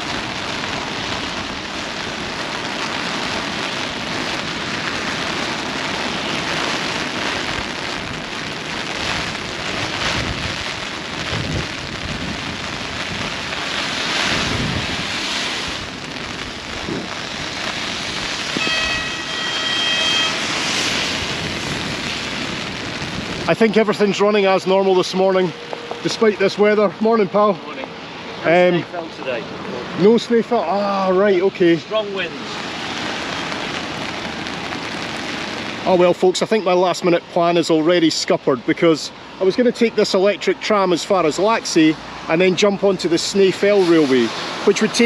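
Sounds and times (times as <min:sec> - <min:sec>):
wind gusts buffeting microphone: 0:00.0 - 0:19.1, 0:20.4 - 0:30.2
heavy rain: 0:00.0 - 0:45.0.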